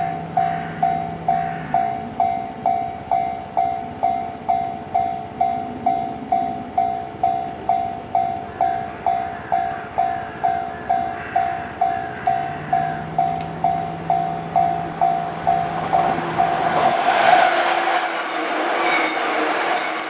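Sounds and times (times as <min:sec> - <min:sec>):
level crossing alarm bell ringing: 0:00.0 - 0:17.5.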